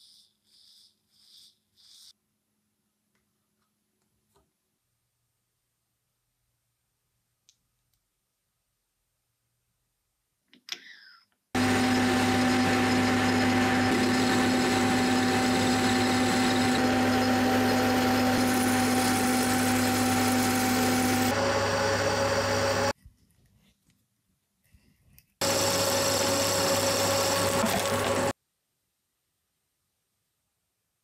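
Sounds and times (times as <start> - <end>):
power tool motor humming: 11.6 - 22.9, 25.4 - 28.4.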